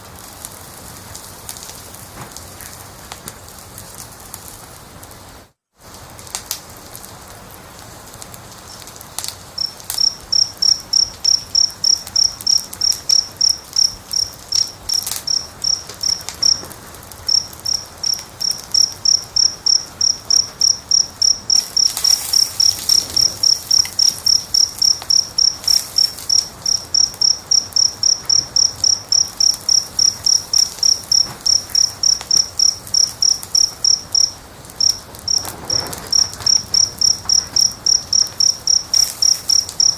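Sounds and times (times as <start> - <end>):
fire crackling and hissing: 0.0 - 39.9
cricket chirping: 9.5 - 39.9.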